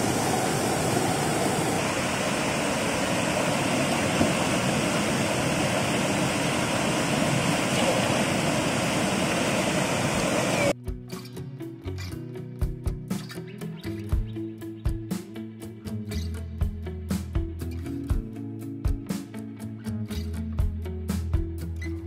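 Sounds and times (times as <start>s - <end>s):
waterfall rushing over boulders: 0.0s - 10.8s.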